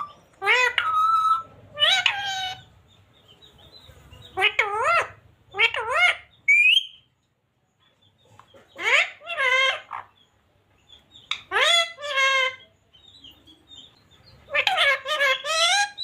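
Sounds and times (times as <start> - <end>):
parrot calling: 0.0 - 2.8, 4.2 - 7.1, 8.6 - 10.3, 11.2 - 12.8, 13.8 - 16.0.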